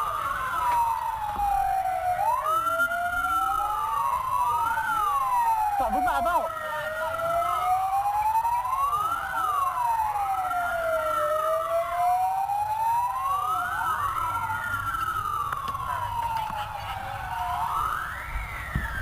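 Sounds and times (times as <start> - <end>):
emergency siren wailing: 0.0 - 19.0
engine and road rumble: 12.8 - 19.0.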